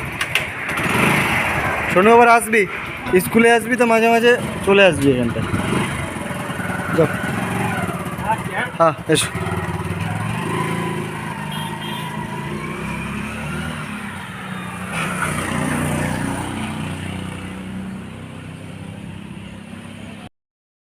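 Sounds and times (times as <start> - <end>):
vehicle engine running: 2.9 - 13.4.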